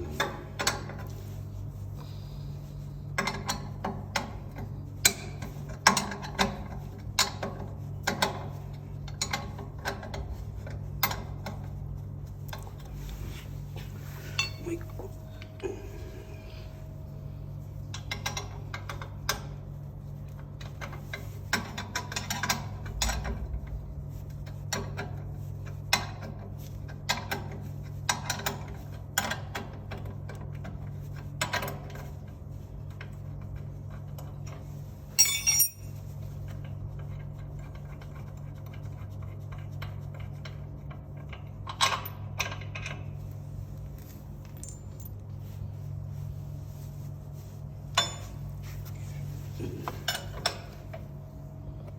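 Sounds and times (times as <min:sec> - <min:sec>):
steady low hum: 0:00.0 - 0:51.9
metal tools clinking: 0:14.3 - 0:14.8, 0:35.2 - 0:36.0, 0:44.4 - 0:45.2, 0:48.0 - 0:48.4
ringing metal clang: 0:35.2 - 0:35.9.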